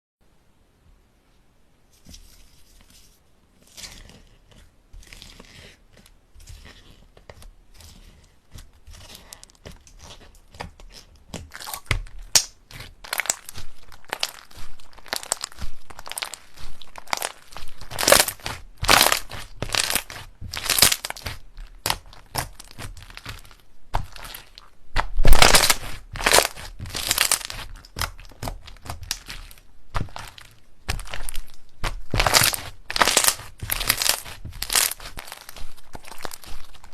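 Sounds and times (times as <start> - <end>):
slime crackling and popping: 8.9 - 36.9.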